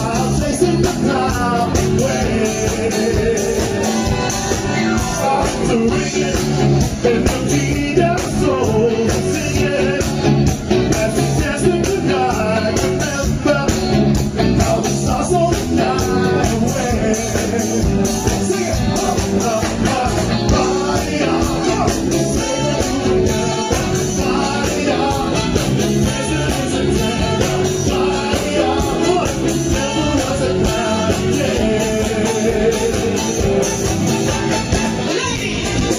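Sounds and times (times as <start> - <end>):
band playing a song: 0.0 - 35.9
person singing: 4.6 - 10.2, 18.5 - 33.8.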